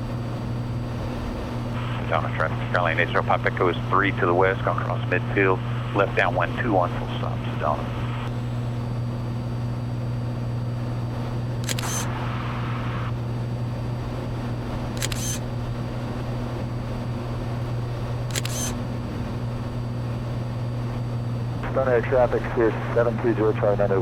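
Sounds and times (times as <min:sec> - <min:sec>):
airplane engine droning: 0:00.0 - 0:24.0
short sharp clicks: 0:15.0 - 0:15.4.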